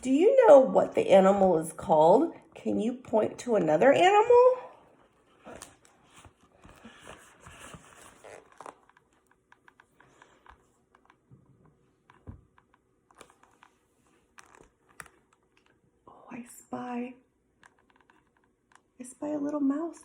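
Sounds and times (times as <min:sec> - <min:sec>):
paper book rustling: 0:05.0 - 0:11.2, 0:13.1 - 0:15.7.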